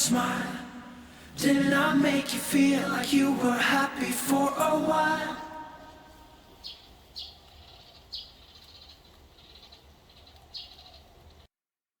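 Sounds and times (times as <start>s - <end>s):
birds chirping: 4.3s - 11.5s
faint bird trills: 6.6s - 11.4s.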